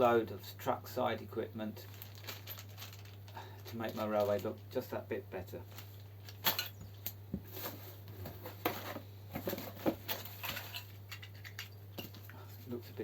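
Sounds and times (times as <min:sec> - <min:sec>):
packaging rustling: 0:01.8 - 0:04.6.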